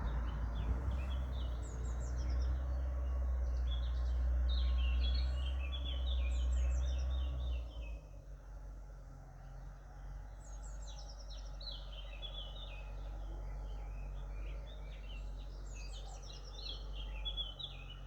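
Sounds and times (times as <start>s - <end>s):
steady low rumble: 0.0s - 1.9s
songbirds twittering: 0.0s - 8.0s, 9.4s - 18.0s.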